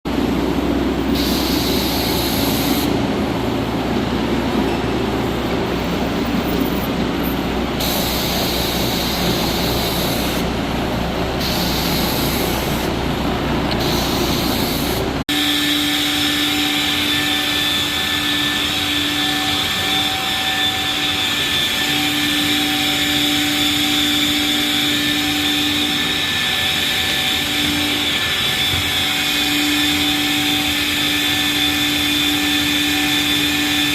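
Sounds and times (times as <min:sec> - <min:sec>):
vacuum motor whine: 0:00.6 - 0:03.2, 0:07.7 - 0:33.9
cleaning wand suction and spray: 0:11.4 - 0:12.9.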